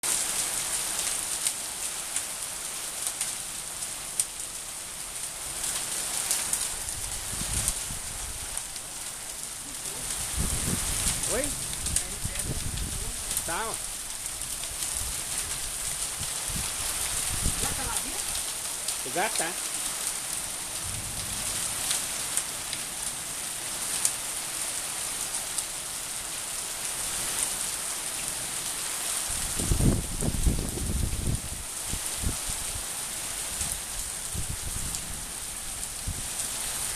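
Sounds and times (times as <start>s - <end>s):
steady rain hiss: 0.0s - 36.9s
low rumble: 20.8s - 21.6s.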